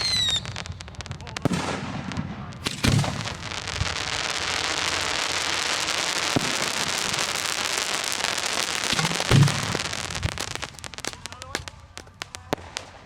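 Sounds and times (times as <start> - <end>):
sharp firework pops: 0.0 - 4.1, 6.2 - 7.8, 8.4 - 13.0
fireworks crackling: 0.0 - 13.0
firework shell booming: 1.4 - 4.0, 8.7 - 13.0.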